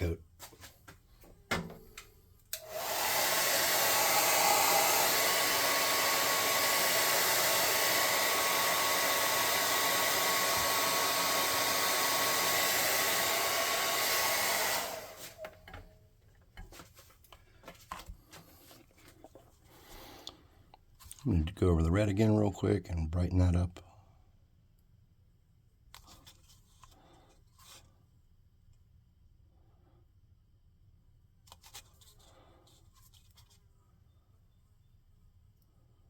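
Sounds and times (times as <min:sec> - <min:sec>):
heat gun blowing: 0:02.5 - 0:15.6.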